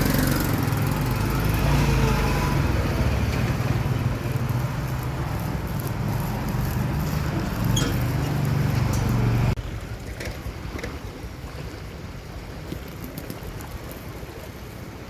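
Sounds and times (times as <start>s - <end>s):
fast-flowing floodwater: 0.0s - 7.9s, 9.5s - 15.0s
vehicle engine hum: 0.0s - 11.4s.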